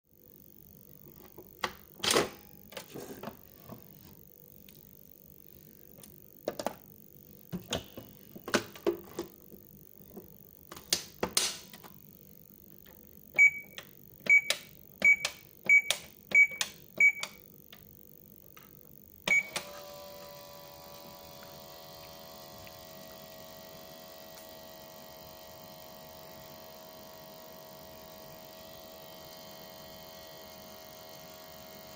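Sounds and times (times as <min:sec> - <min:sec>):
toy electronic hum: 0:19.2 - 0:31.9.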